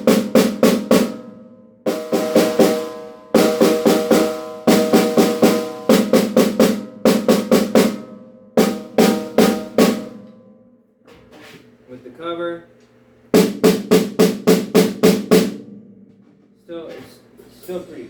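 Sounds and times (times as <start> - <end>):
ringing snare drum strokes: 0.0 - 10.7, 13.4 - 16.1.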